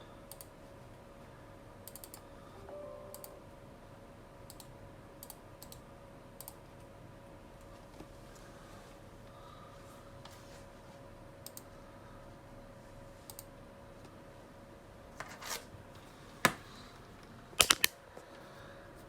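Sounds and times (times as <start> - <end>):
faint steady hum: 0.0 - 19.0
clicks and taps of small objects: 17.6 - 17.9.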